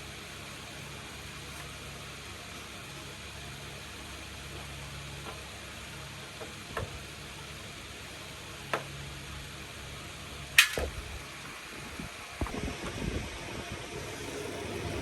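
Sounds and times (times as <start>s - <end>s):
sharp clicks and knocks: 10.6s - 11.2s.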